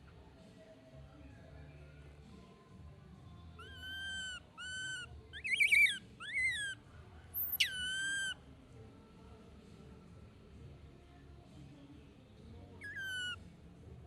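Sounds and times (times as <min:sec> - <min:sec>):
baby monkey crying: 0:03.6 - 0:06.8, 0:07.4 - 0:08.4, 0:12.8 - 0:13.4.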